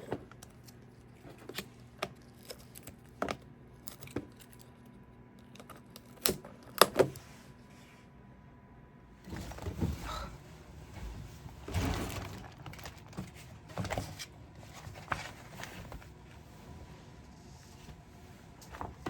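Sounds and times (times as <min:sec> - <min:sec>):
paper rustling: 0:11.0 - 0:16.4.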